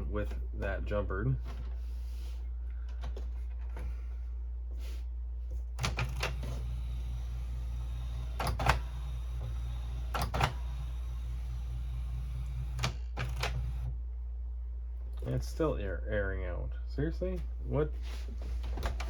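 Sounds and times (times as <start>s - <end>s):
printer motor hum: 5.8s - 14.0s.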